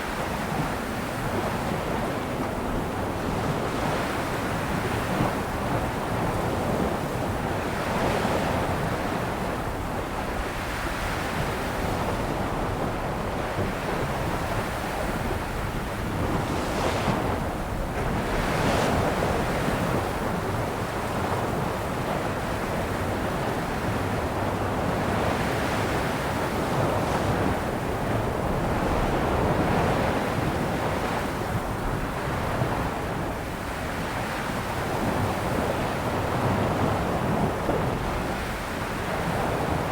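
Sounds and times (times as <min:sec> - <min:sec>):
sea waves breaking ashore: 0:13.6 - 0:32.6.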